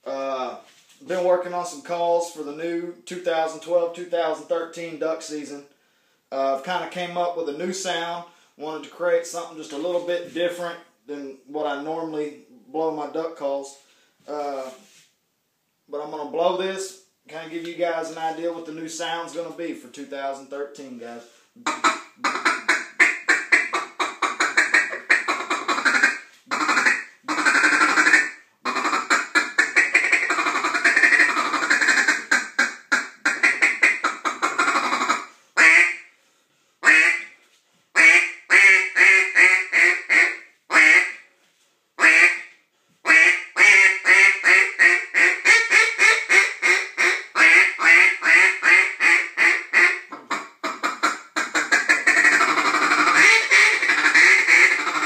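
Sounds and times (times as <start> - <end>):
duck call quacks: 21.6 - 36.1, 36.8 - 37.4, 38.0 - 41.2, 42.0 - 42.5, 43.1 - 55.0.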